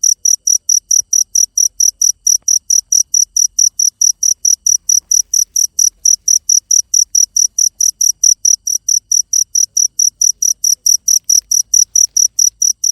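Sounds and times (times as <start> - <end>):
cricket chirping: 0.0 - 12.9.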